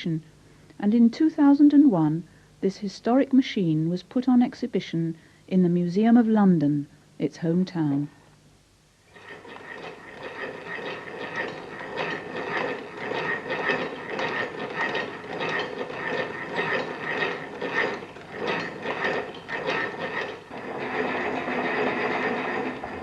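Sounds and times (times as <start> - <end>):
lathe gears clicking and clattering: 9.1 - 23.0.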